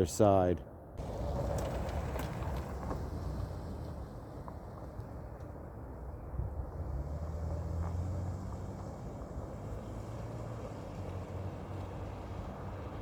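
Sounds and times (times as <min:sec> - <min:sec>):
vehicle passing: 0:06.5 - 0:13.0.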